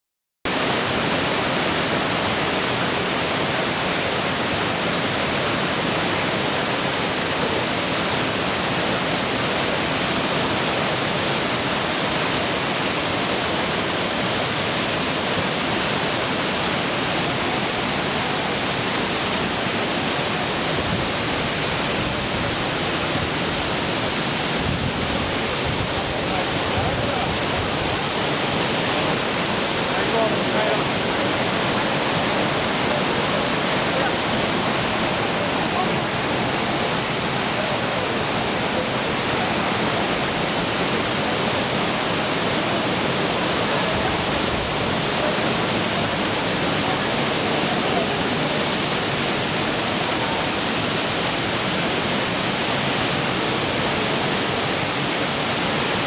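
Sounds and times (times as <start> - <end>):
waterfall rushing: 0.5 - 56.0.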